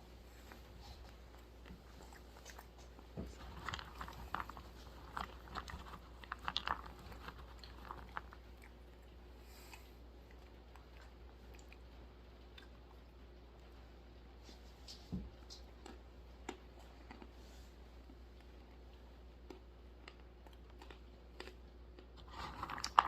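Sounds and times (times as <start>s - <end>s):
quiet chewing: 0.0s - 23.0s
almonds crunching: 2.1s - 9.2s, 19.4s - 23.0s.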